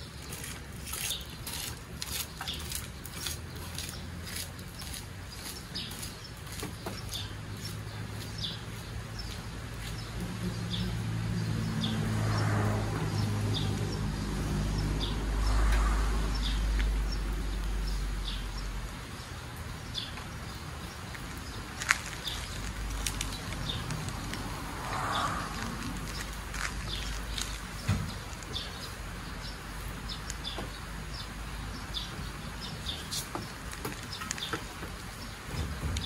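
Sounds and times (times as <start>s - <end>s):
small birds chirping: 0.0s - 36.0s
low engine rumble: 6.7s - 32.5s.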